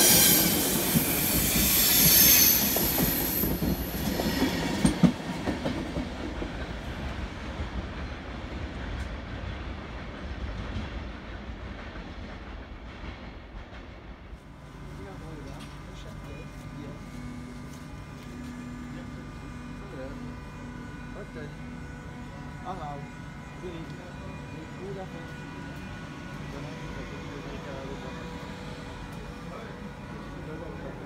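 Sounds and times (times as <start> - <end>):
train wheels squealing: 0.0 - 5.1
train rumble: 0.0 - 31.0.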